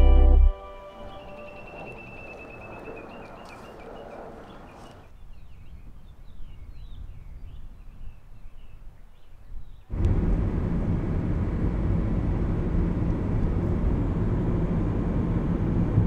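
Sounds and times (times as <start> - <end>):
small birds chirping: 0.8 - 9.9
low rumble: 9.9 - 16.0.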